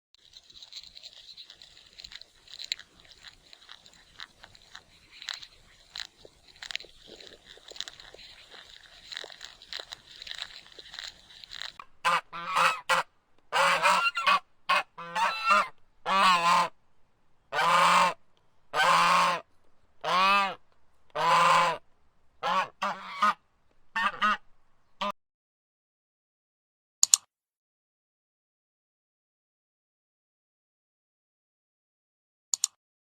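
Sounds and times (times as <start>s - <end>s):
faint crackling: 0.2s - 25.1s
bird honking calls: 0.4s - 16.8s, 17.5s - 25.1s.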